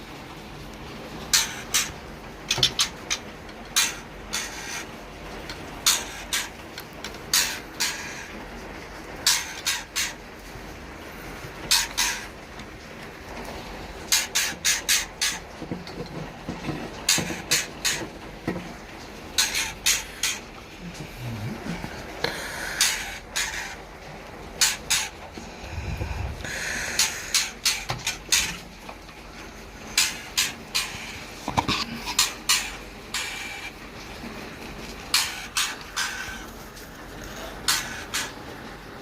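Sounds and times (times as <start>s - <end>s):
nestlings begging with raspy calls: 1.3s - 5.0s, 5.8s - 6.7s, 7.3s - 8.4s, 9.2s - 10.2s, 11.7s - 12.3s, 19.3s - 23.9s, 24.6s - 25.3s, 26.5s - 28.6s, 35.1s - 36.6s, 37.6s - 38.4s.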